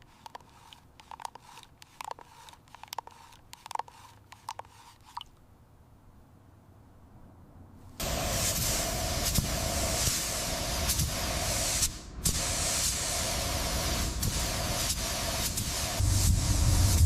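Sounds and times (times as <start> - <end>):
spraying hiss: 8.0 - 17.0
pulsing mid-pitched hum: 15.8 - 17.0.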